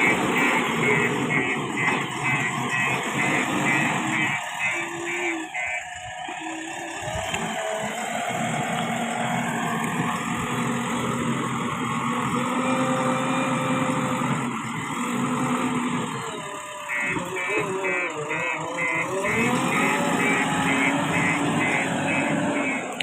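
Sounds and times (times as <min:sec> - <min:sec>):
diesel engine running: 0:00.0 - 0:23.0
rapid high beeps: 0:16.8 - 0:22.9.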